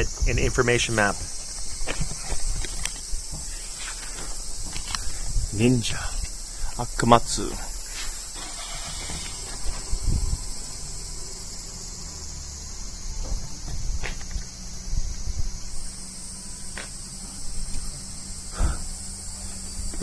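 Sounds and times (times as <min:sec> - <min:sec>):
low thumps and knocks: 0:00.0 - 0:05.6, 0:13.0 - 0:16.0, 0:16.7 - 0:20.0
cicadas chorus: 0:00.0 - 0:20.0.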